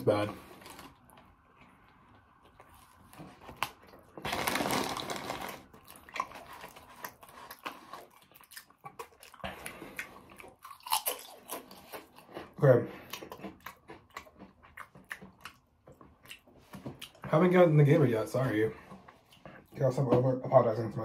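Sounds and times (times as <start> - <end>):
crunching and chewing: 0.5 - 17.3
rustling: 2.6 - 5.8.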